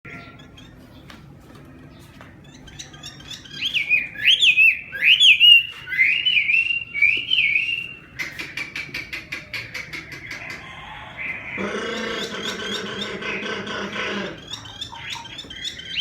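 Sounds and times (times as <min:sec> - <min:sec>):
songbird singing whistled song: 0:02.4 - 0:09.0, 0:14.4 - 0:16.0.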